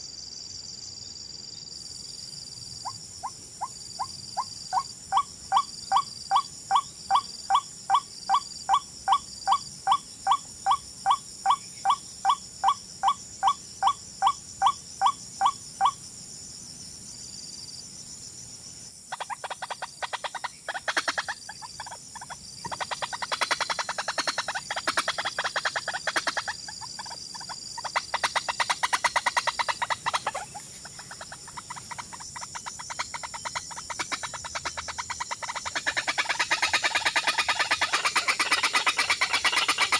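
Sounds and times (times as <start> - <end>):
bird calling: 19.1 - 39.9
bird chattering: 19.1 - 39.9.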